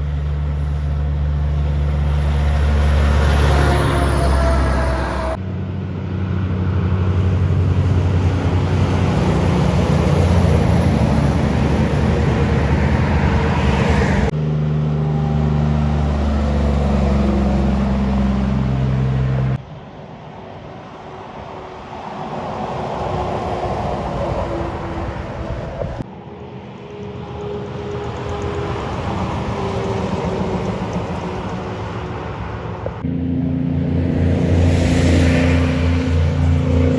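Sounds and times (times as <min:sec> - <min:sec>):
diesel truck engines driving by: 0:00.0 - 0:19.6, 0:27.2 - 0:36.9.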